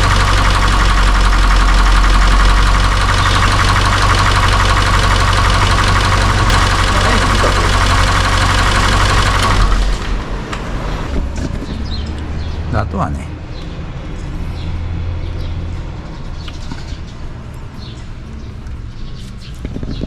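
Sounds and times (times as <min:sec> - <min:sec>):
car engine idling: 0:00.0 - 0:12.1.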